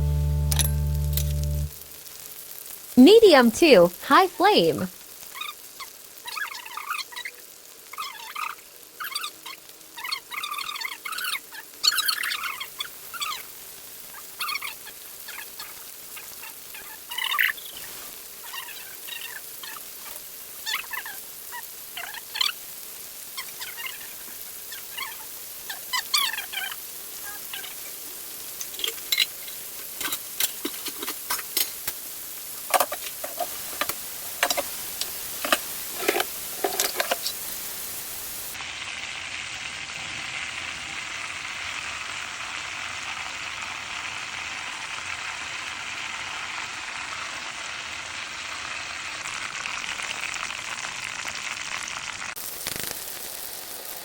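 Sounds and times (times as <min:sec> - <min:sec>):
chicken frying in hot oil: 0:01.4 - 0:04.2, 0:04.8 - 0:54.0.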